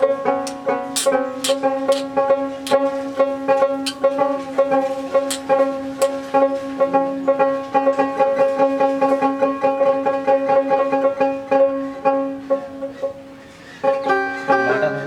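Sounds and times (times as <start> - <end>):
plucked lute with drone note: 14.0 - 15.0.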